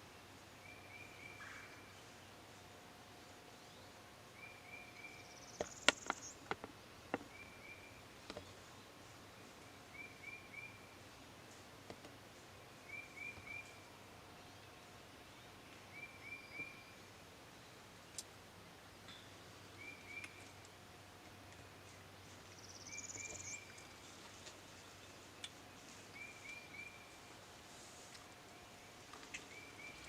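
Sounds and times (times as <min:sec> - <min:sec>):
small bird calling: 0:22.6 - 0:24.1.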